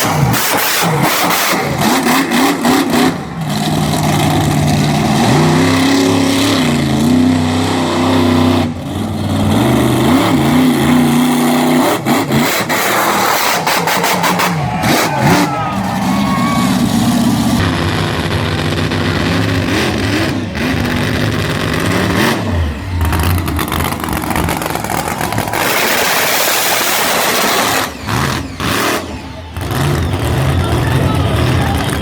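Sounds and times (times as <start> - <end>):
engine crackling: 0.0 - 32.0
monster truck engine revving: 0.0 - 32.0.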